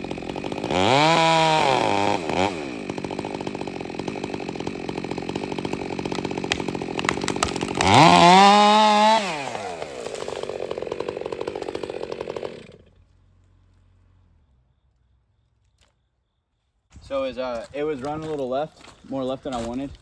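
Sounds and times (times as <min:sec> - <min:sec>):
chainsaw idling and revving: 0:00.0 - 0:13.2.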